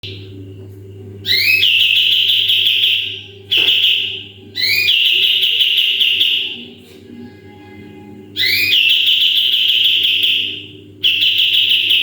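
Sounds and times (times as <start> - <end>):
bulbul rattling trills: 3.5 - 5.4.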